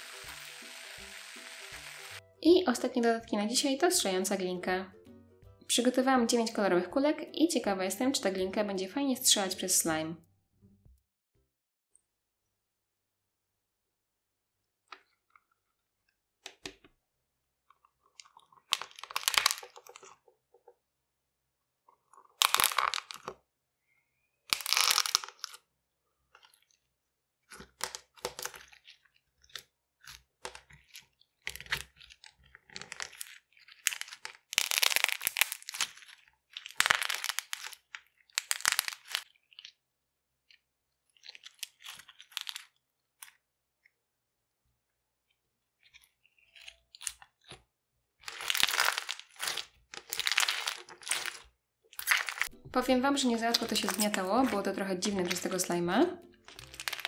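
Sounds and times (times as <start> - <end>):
clay balls crackling in slime: 17.5 - 20.6, 21.8 - 23.6, 24.4 - 57.0.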